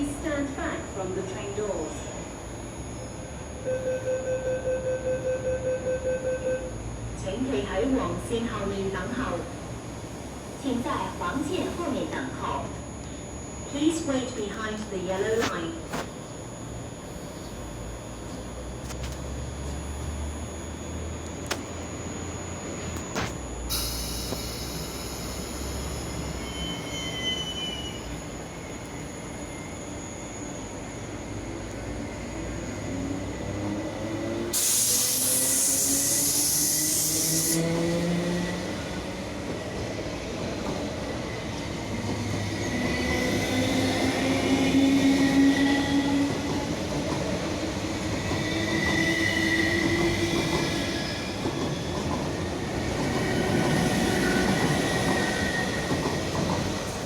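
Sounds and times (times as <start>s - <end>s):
loud hiss of air: 23.7s - 26.4s, 34.5s - 37.8s
electric train motors whining: 23.7s - 30.0s, 31.4s - 39.1s.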